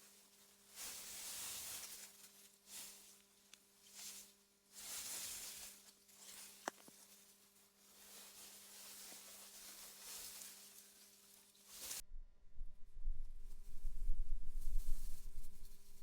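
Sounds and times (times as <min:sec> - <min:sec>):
faint steady hum: 0:00.0 - 0:16.0
wind blowing through grass: 0:12.6 - 0:16.0.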